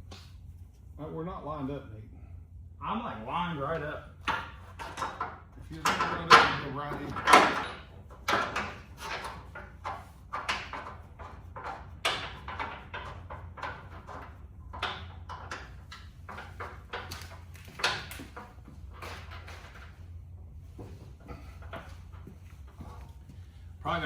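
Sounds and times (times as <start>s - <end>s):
metal tools clattering: 4.3s - 10.0s.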